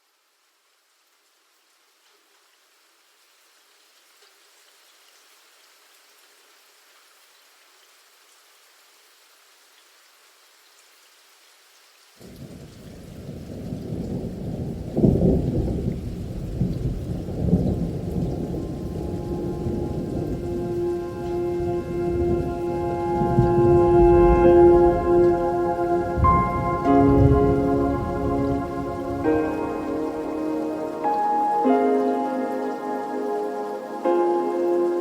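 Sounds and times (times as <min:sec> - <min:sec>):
rain hissing: 0:00.0 - 0:35.0
thunder rumbling: 0:12.4 - 0:32.6.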